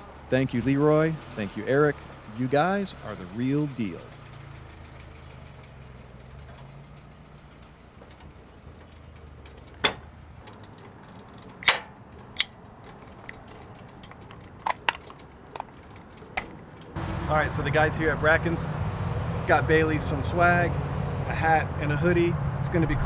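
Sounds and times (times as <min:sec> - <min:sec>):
vehicle idling: 0:00.0 - 0:16.9
sharp clacks: 0:09.7 - 0:16.6.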